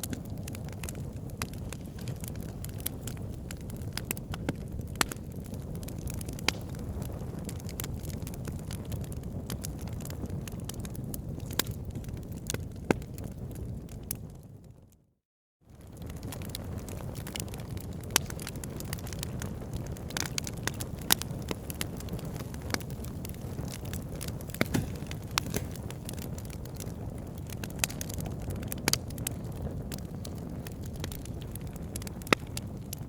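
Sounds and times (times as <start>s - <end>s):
campfire crackling: 0.0s - 14.5s, 15.7s - 33.0s.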